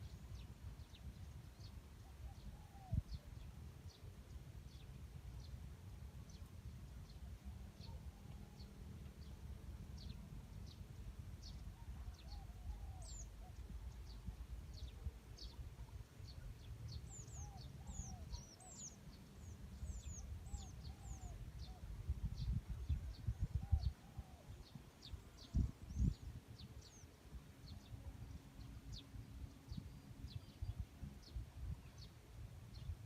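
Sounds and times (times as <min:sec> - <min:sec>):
birds chirping: 0:11.4 - 0:21.8
wind buffeting microphone: 0:19.8 - 0:27.0.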